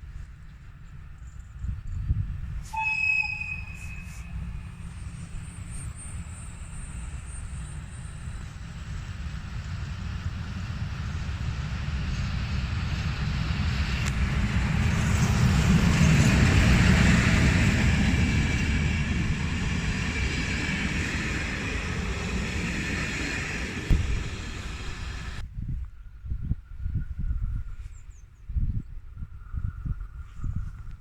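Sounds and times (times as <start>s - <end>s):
diesel train passing: 2.5s - 25.4s.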